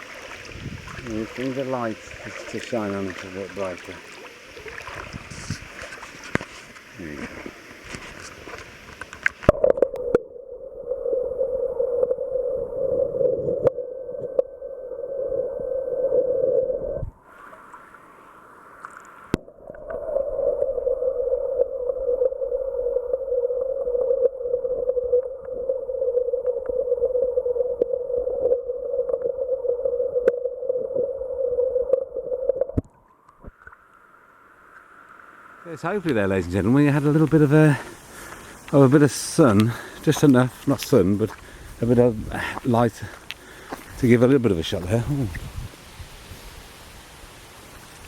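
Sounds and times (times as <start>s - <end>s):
muffled underwater water rush: 0.0s - 43.0s
stream trickling and gurgling: 0.0s - 48.0s
faint clicks: 18.8s - 20.0s.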